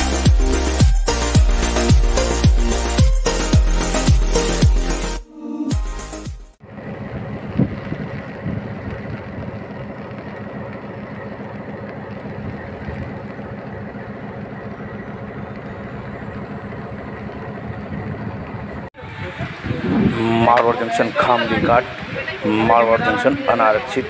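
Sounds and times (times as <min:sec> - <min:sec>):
music jingle: 0:00.0 - 0:06.6.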